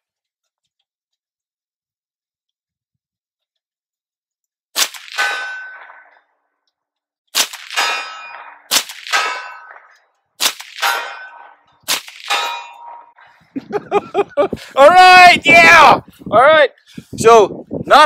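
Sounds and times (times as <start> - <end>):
rifle shots: 4.8 - 6.2, 7.3 - 13.0
bullet clanging on steel target: 5.1 - 6.2, 7.6 - 10.1, 10.8 - 13.2.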